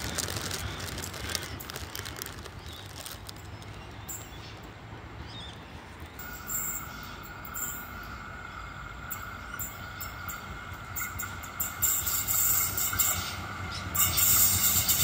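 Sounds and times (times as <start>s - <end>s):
diesel railcar rumble: 0.0s - 15.0s
high-pitched wheel whine: 6.1s - 15.0s.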